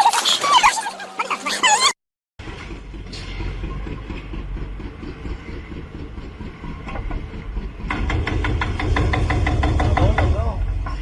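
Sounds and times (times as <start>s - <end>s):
heavy vehicle rumbling: 2.4s - 11.0s.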